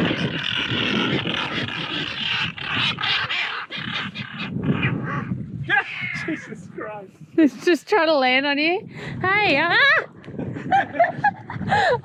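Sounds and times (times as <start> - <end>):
flock of seabirds calling: 0.0 - 6.5.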